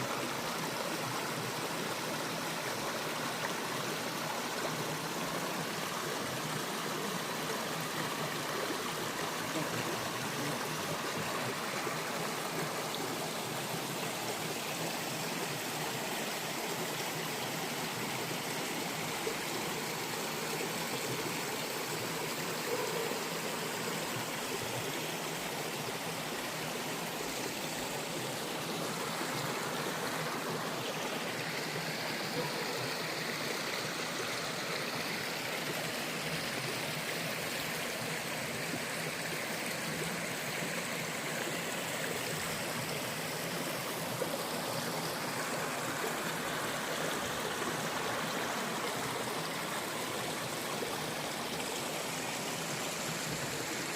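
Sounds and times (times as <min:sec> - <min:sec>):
stream flowing: 0:00.0 - 0:53.9.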